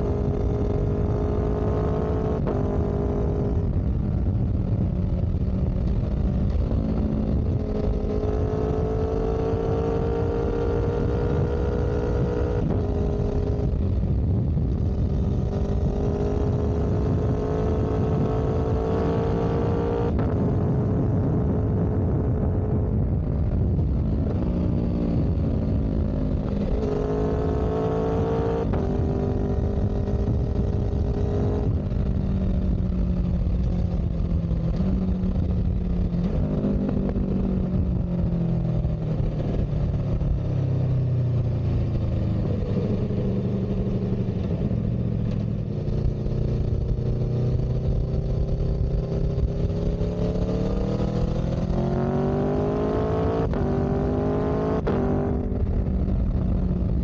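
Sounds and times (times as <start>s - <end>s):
heavy low rumble: 0.0s - 8.6s, 12.2s - 57.0s.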